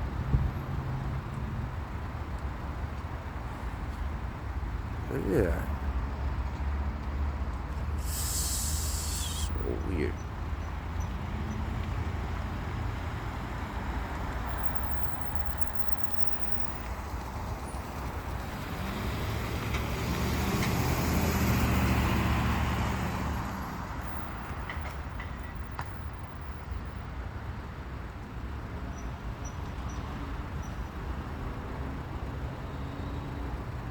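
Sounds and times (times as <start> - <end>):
road traffic noise: 0.1 - 15.7.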